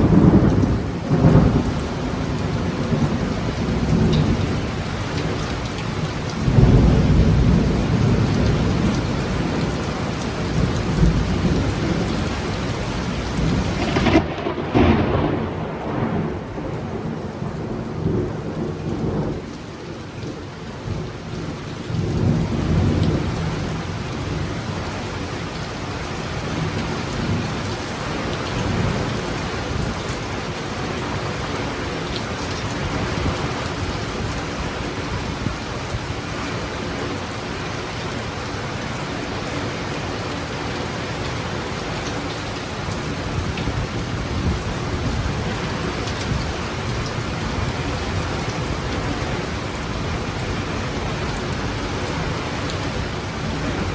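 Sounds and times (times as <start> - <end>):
heavy rain falling: 0.0 - 53.9
rolling thunder: 13.3 - 19.6.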